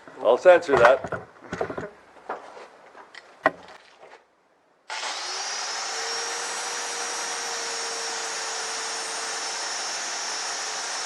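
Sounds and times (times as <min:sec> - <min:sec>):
angle grinder whining: 0:04.9 - 0:11.0.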